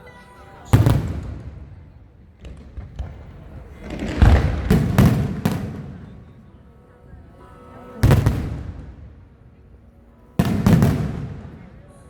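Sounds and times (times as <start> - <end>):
firework shells bursting: 0.8 - 6.2.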